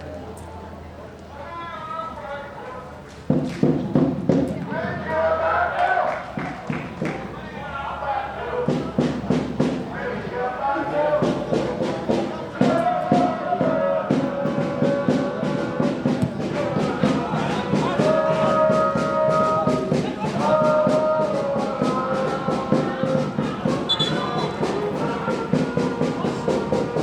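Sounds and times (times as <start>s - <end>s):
fast drumbeat: 3.3s - 4.5s, 11.2s - 27.0s
brass band horns: 22.5s - 27.0s.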